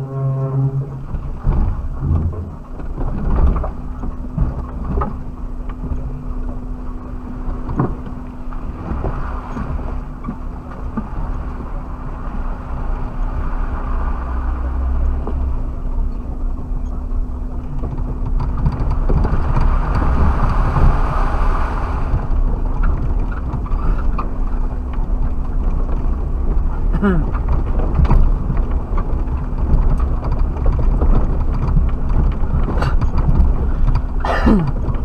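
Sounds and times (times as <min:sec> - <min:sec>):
knocks and rattles over bumps: 0:00.0 - 0:11.9, 0:14.1 - 0:21.4, 0:22.0 - 0:35.0
engine drone inside vehicle: 0:00.0 - 0:35.0.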